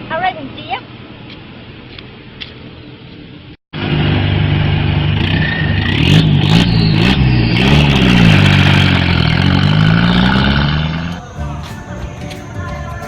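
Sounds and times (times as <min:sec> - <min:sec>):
motorcycle engine revving: 0:03.8 - 0:11.3.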